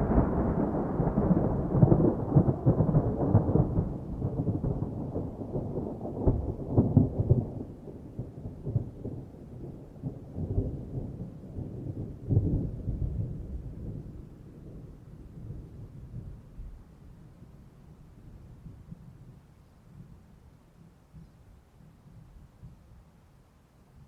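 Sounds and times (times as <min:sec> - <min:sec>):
thunder rumbling: 0:00.0 - 0:16.8.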